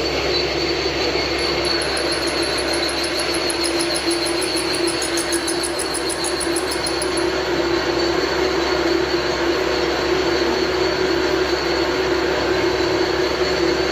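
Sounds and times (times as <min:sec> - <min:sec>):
lathe whining screech: 0:00.0 - 0:09.2
fast high ticking: 0:01.4 - 0:07.3.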